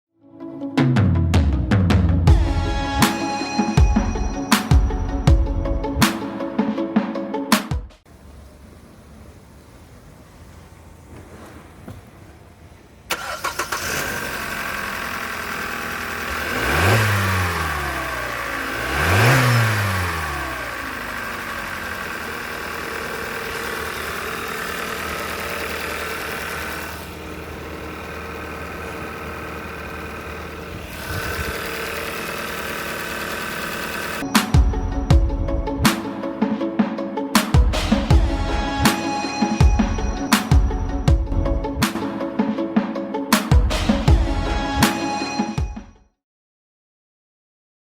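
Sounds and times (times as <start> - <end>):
car engine idling: 8.1 - 35.6
car engine starting: 8.1 - 36.4, 37.4 - 42.4
engine revving: 13.1 - 34.9.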